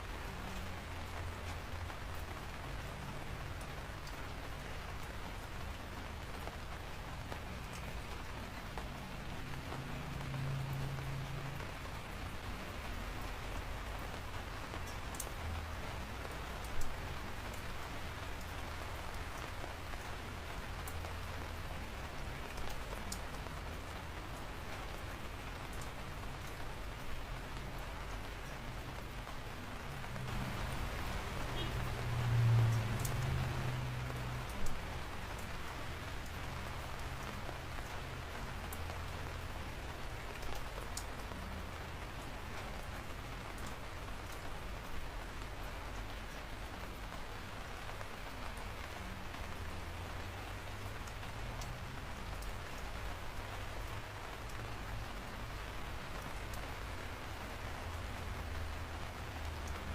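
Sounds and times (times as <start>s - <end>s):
raindrops ticking close by: 0.0s - 59.9s
steady rainfall: 0.0s - 59.9s.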